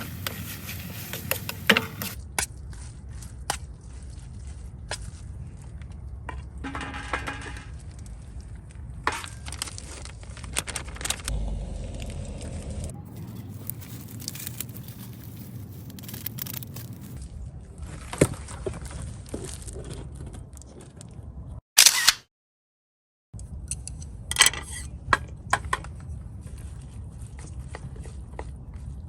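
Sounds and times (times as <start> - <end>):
objects clicking and scraping: 0.0 - 2.6, 12.0 - 17.2.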